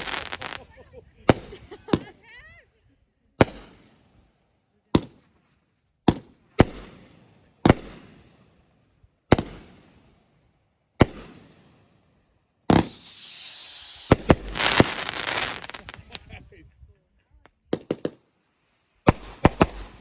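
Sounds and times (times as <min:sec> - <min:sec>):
firework crackling: 0:00.0 - 0:02.1, 0:12.7 - 0:16.3, 0:17.6 - 0:20.0
firework bangs: 0:00.0 - 0:02.2, 0:12.7 - 0:16.3, 0:17.7 - 0:20.0
high firework whistle: 0:12.7 - 0:16.0.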